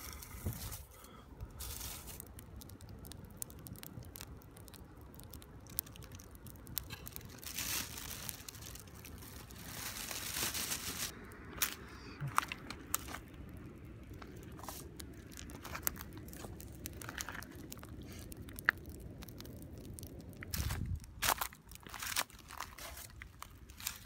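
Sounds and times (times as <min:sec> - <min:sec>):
crinkling scratchy rustling: 0:00.0 - 0:13.4, 0:14.1 - 0:24.0.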